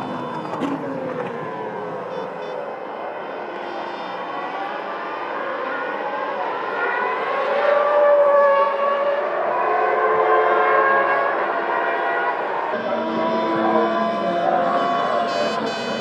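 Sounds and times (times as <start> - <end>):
racing car engines at high revs: 0.0 - 16.0.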